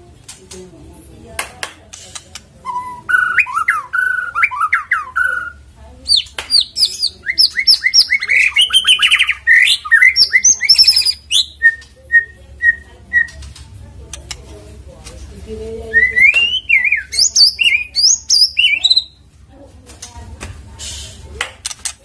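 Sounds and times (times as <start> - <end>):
songbird singing whistled phrases: 2.6 - 13.4, 15.9 - 19.2.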